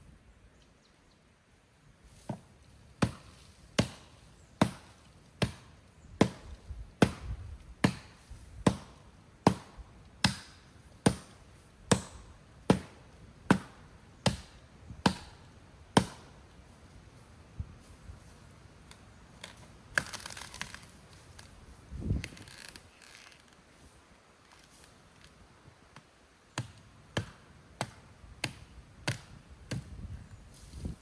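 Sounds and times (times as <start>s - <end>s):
axe chopping wood: 2.3s - 16.4s, 26.5s - 30.0s.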